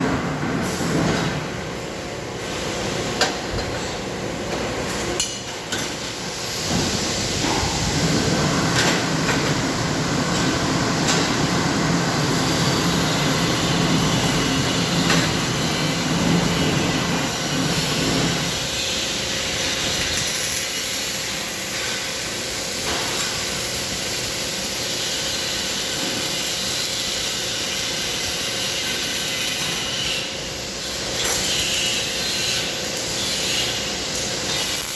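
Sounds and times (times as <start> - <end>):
welding hissing crackle: 9.7 - 34.9.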